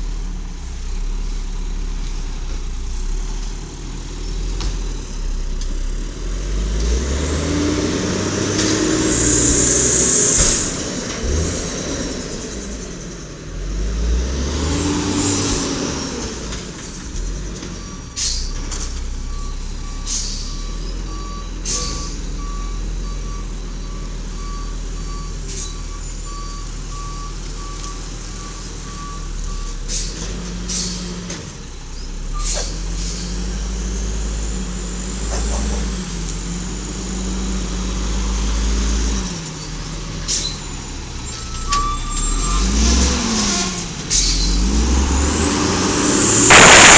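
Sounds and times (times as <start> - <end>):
garbage truck engine running: 0.0 - 46.9
air brake hisses: 20.1 - 20.6, 21.6 - 22.1, 32.4 - 33.4.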